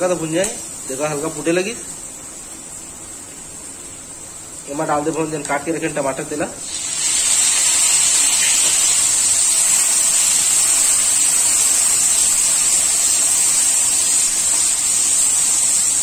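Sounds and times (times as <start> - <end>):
tomatoes sizzling in hot oil: 0.0 - 16.0.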